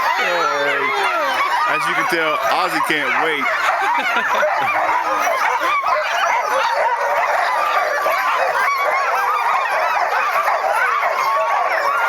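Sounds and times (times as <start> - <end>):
sled dogs barking and yelping: 0.0 - 12.0.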